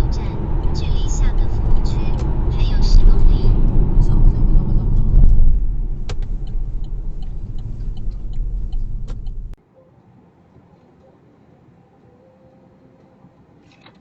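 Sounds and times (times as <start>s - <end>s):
car road and engine noise: 0.0s - 9.6s.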